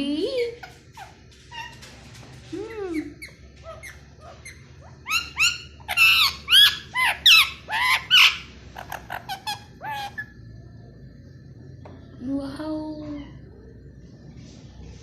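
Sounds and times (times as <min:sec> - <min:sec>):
parrot squawking: 0:02.9 - 0:10.4.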